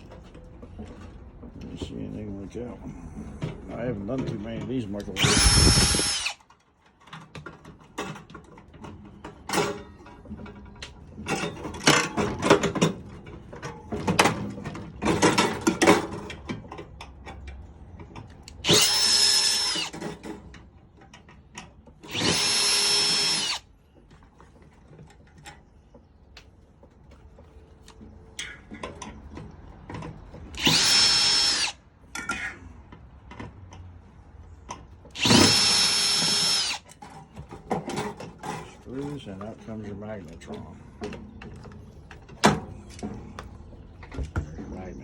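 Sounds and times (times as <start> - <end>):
power drill whining: 5.2 - 6.4, 18.6 - 20.0, 22.0 - 23.7, 30.5 - 31.8, 35.1 - 36.8.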